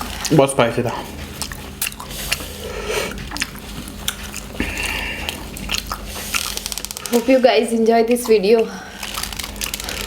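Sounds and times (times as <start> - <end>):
eating mouth sounds: 1.0 - 7.2.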